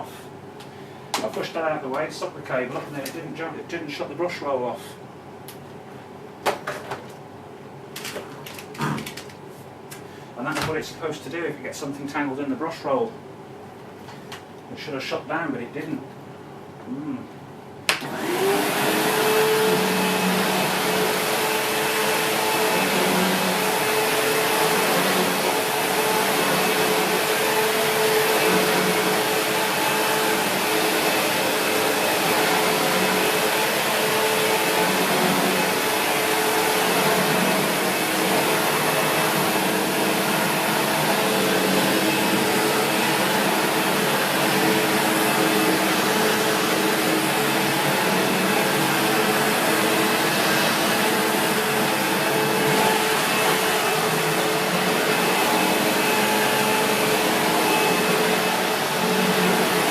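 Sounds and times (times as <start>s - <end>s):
vacuum cleaner motor running: 18.0s - 59.9s.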